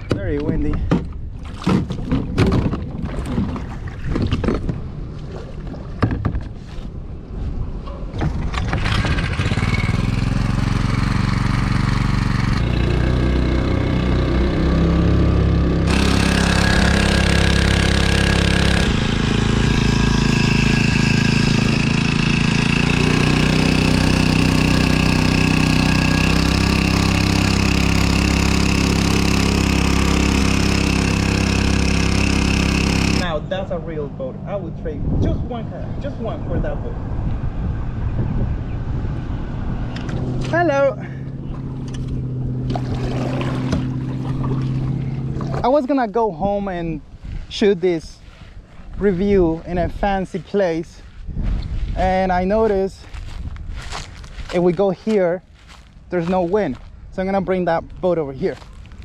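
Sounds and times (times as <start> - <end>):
outboard motor running: 8.3 - 33.4, 40.0 - 45.8.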